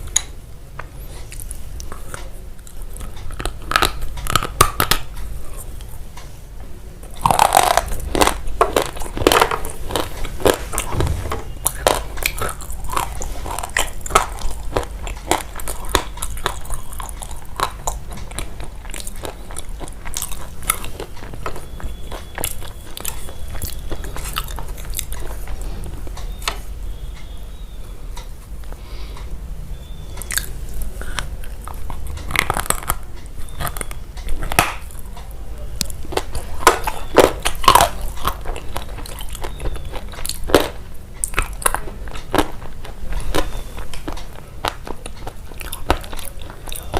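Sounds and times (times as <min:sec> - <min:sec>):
crunching crisp crackles: 0:07.0 - 0:27.7, 0:30.1 - 0:46.9.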